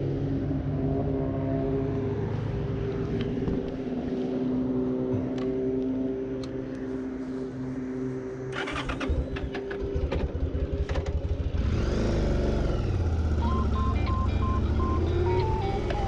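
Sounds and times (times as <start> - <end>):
motorcycle engine running: 8.6 - 15.9.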